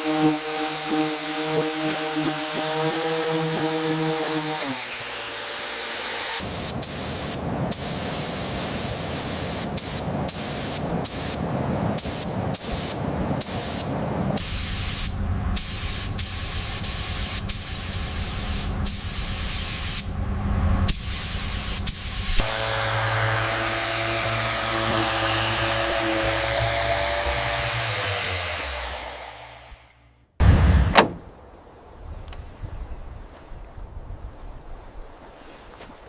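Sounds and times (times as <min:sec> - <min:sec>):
hissing spray bursts: 0:00.0 - 0:20.1, 0:20.9 - 0:27.2
steady low hum: 0:10.1 - 0:32.2.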